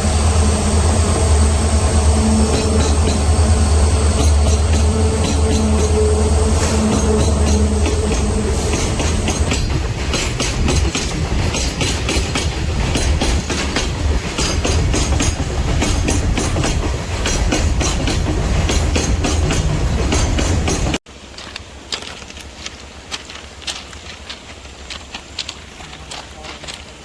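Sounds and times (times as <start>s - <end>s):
engine hum: 0.0s - 9.6s
train wheels clattering over rail joints: 2.4s - 3.5s, 4.1s - 27.0s.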